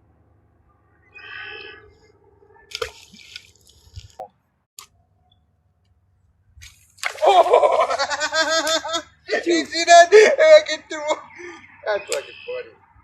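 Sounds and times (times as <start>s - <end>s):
water splashes: 2.7s - 4.3s, 6.6s - 8.0s
loud laughter: 7.2s - 12.7s.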